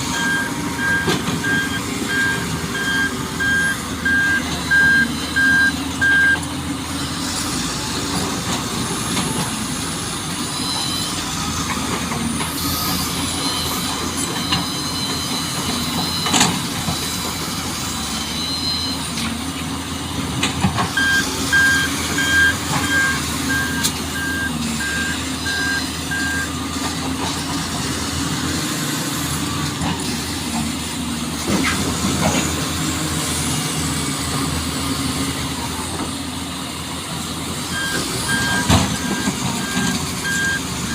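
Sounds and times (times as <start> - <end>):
reversing alarm beeping: 0.0 - 6.5, 12.9 - 19.1, 20.9 - 26.6, 37.6 - 40.9
truck engine running: 0.0 - 40.9.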